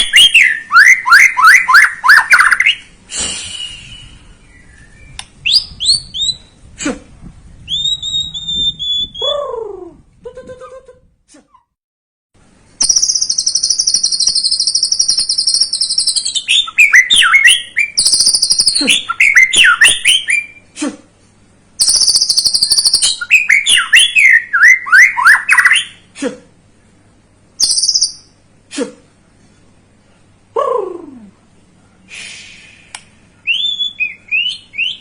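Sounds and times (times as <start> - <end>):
bird singing buzzy trill: 0.0 - 6.8, 7.4 - 9.7, 12.7 - 20.7, 21.7 - 26.1, 27.6 - 28.6, 33.4 - 35.0.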